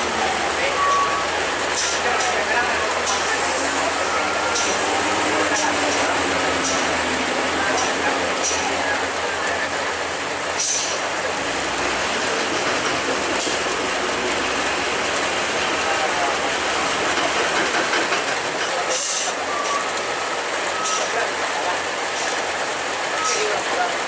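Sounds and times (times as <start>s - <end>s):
heavy truck traffic rattling: 0.0s - 24.0s
tyres hissing on wet road: 0.0s - 24.0s.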